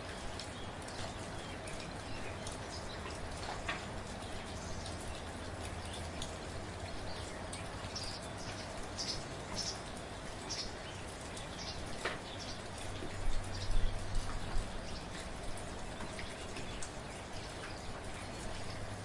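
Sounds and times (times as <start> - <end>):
soft rain falling: 0.0 - 19.0.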